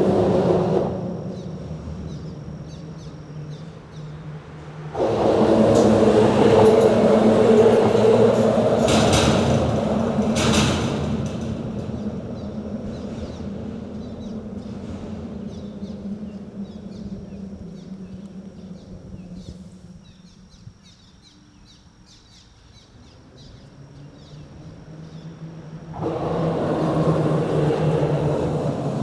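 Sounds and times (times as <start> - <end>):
vehicles passing: 0.0 - 20.8, 22.8 - 29.0
small birds chirping: 12.0 - 25.4.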